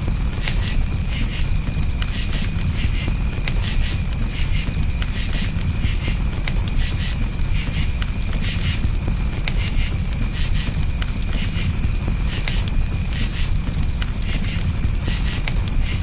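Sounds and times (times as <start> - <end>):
campfire crackling: 0.0 - 16.0
crickets chirping: 0.0 - 16.0.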